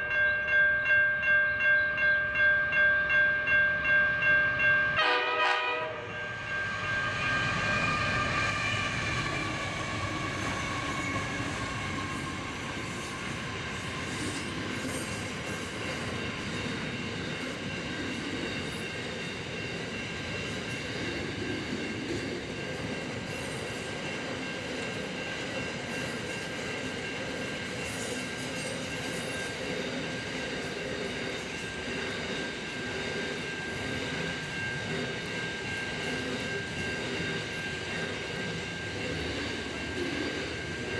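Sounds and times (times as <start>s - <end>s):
train horn: 4.9s - 11.6s
train wheels rumbling on rails: 5.1s - 40.9s.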